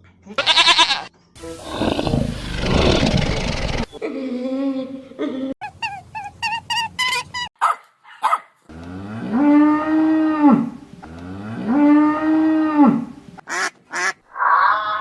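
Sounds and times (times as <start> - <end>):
cow mooing: 8.7 - 13.1.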